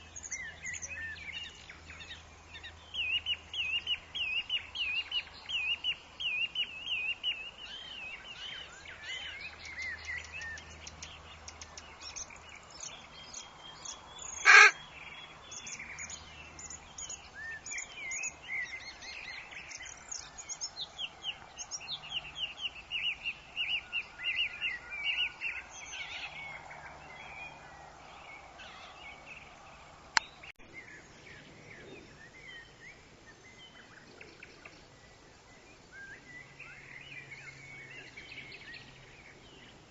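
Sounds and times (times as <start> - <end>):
birds chirping and trilling: 0.0 - 39.9
loud harsh bird call: 14.2 - 14.8.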